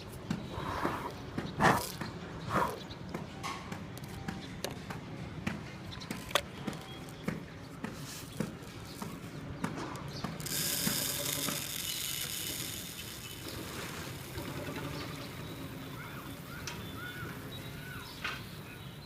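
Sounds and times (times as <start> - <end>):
bird seed rattling: 10.4 - 18.0.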